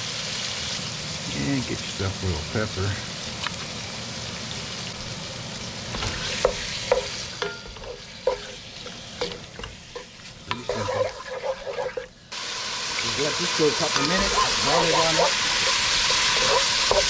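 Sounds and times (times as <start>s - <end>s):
chicken sizzling in oil: 0.0s - 17.0s
utensil scraping pan: 6.0s - 12.1s, 13.8s - 17.0s.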